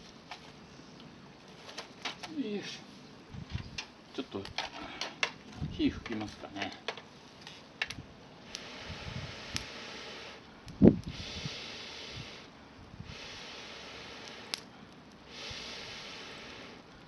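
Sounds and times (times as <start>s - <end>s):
fire crackles: 0.0s - 17.0s
breaths blown into campfire: 8.4s - 17.0s.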